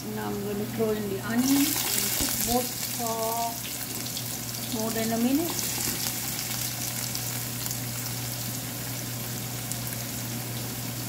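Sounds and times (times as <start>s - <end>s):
low steady hum: 0.0s - 11.0s
onion sizzling in oil: 0.9s - 11.0s.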